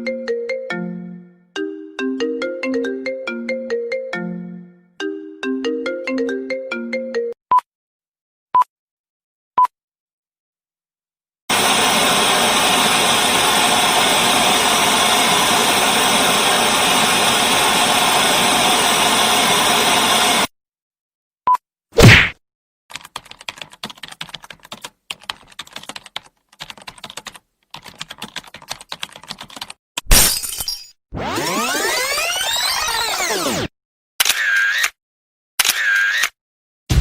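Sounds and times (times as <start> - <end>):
phone ringtone melody: 0.0 - 7.4.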